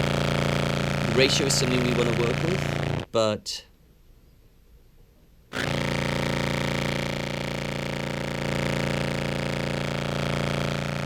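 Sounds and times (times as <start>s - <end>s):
distorted low clarinet note: 0.0s - 3.1s, 5.6s - 11.0s.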